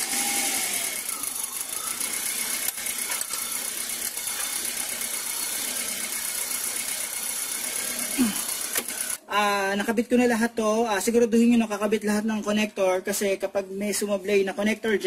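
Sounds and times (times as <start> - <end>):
car engine idling: 0.0 - 9.1.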